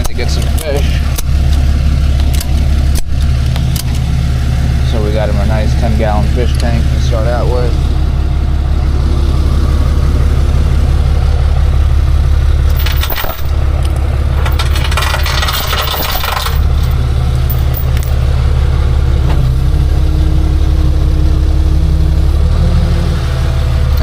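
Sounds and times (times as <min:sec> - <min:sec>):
metallic clinking and rattling: 0:00.0 - 0:04.1, 0:12.6 - 0:18.3
truck engine idling: 0:00.0 - 0:24.0.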